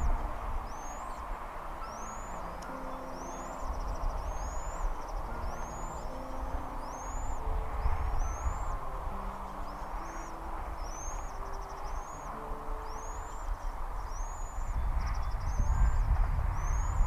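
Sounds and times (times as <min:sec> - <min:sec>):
bird chirping and trilling: 0:00.0 - 0:17.0.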